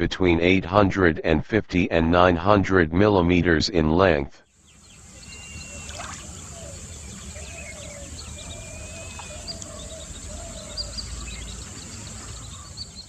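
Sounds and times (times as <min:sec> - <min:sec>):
small birds chirping: 0:04.5 - 0:13.0
steady high hiss: 0:04.6 - 0:13.0.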